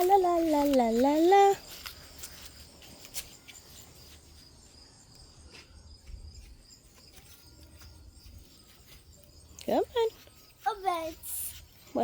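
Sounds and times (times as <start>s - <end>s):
faint insect chirping: 0.0s - 12.0s.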